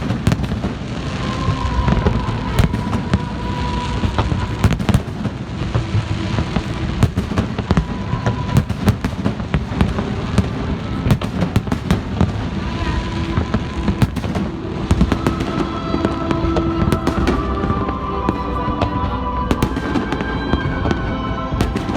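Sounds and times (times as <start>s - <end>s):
faint music: 0.0s - 21.9s
fireworks bangs and crackles: 0.0s - 21.9s.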